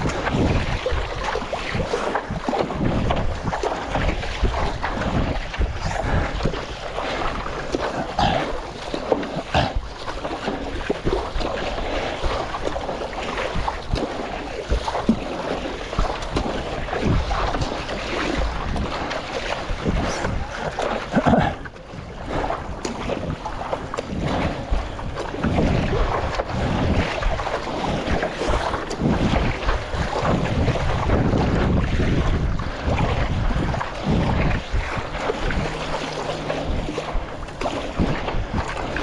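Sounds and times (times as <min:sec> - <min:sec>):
water sloshing and splashing: 0:00.0 - 0:39.0
wind buffeting microphone: 0:00.0 - 0:39.0.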